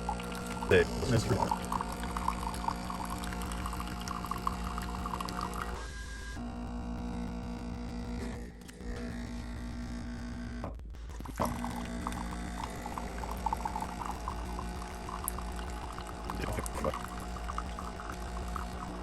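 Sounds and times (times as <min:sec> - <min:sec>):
water trickling and splashing: 0:00.0 - 0:05.8, 0:11.3 - 0:19.0
coffee machine pump hum: 0:00.0 - 0:19.0.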